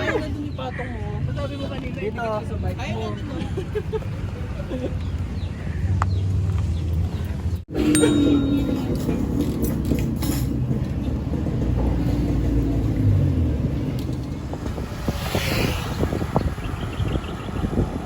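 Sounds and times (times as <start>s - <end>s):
wind and road noise rumble: 0.0s - 18.0s.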